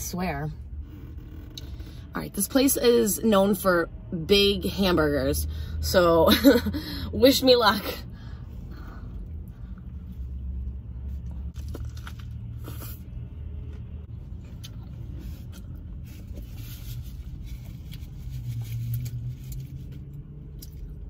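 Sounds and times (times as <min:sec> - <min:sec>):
low car cabin rumble: 0:00.0 - 0:21.0
person chewing a burger: 0:09.1 - 0:21.0.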